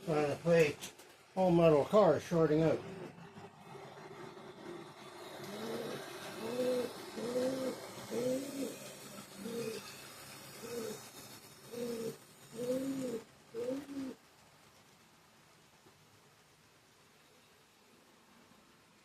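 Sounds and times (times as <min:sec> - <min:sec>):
dove cooing: 0:05.4 - 0:10.0, 0:10.6 - 0:14.2.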